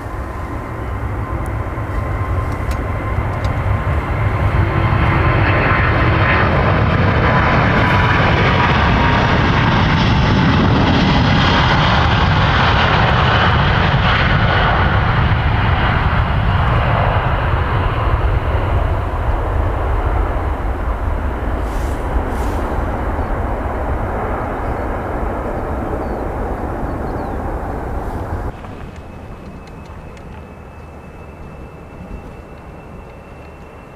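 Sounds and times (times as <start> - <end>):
jet engine hiss: 0.0 - 14.0, 19.5 - 33.9
jet engines rumbling: 0.0 - 33.9.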